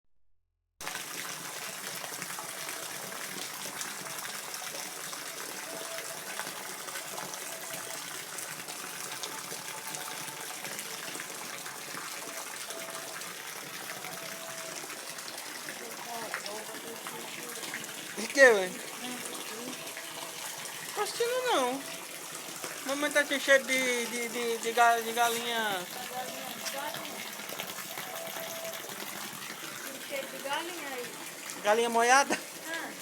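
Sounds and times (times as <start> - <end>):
steady rain falling: 0.8 - 33.0.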